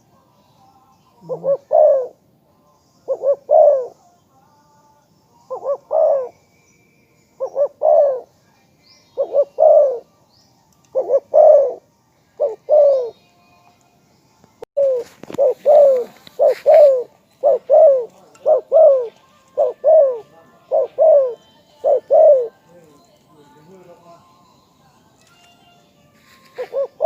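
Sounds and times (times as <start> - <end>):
dove cooing: 1.2 - 2.2, 3.0 - 4.0, 5.4 - 6.4, 7.4 - 8.3, 9.2 - 10.1, 10.9 - 13.2, 14.8 - 23.0, 26.5 - 27.0.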